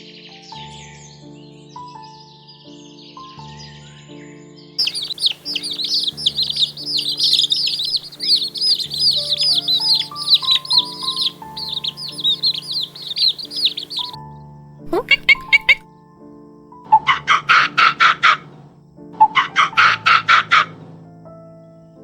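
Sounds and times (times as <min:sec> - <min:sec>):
background music with held notes: 0:00.0 - 0:22.0
small birds chirping: 0:04.8 - 0:14.2, 0:14.9 - 0:15.8.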